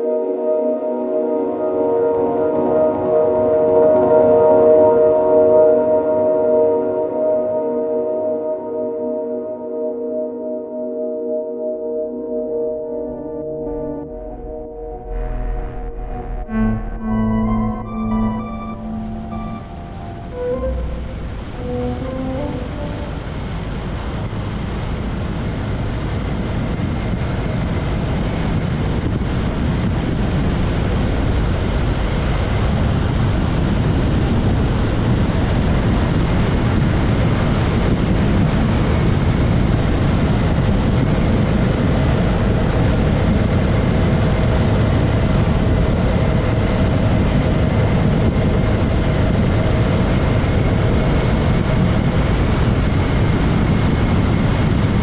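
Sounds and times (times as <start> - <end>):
motorcycle engine drone: 13.0 - 28.5
wind rushing over microphone: 20.7 - 55.0.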